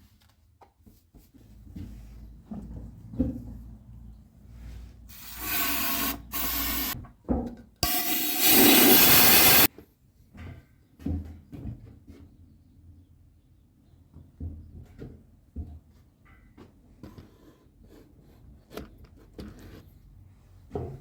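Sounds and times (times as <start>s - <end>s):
pressurized gas hissing: 5.1s - 7.0s, 7.8s - 9.7s.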